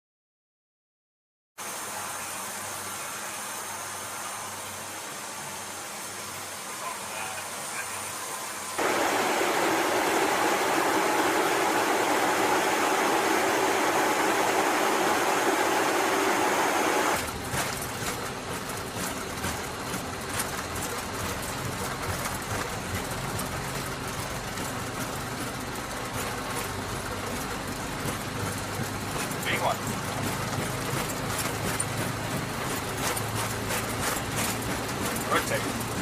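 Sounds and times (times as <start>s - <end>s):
jet engine whine: 6.8s - 17.4s
jet engines roaring: 8.8s - 17.2s
low engine rumble: 8.8s - 36.0s.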